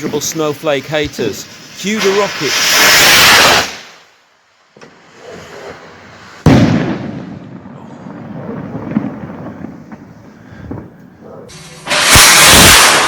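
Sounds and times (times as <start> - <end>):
firework bang: 1.9 - 4.0, 6.4 - 11.0, 11.6 - 13.0
rumbling echo: 6.5 - 13.0.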